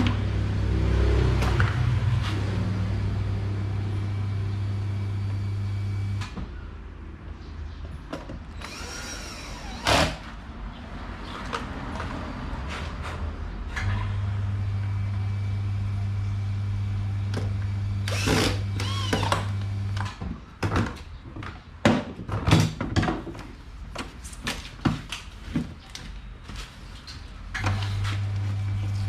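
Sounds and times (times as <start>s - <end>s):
electric fan motor humming: 14.2s - 20.0s.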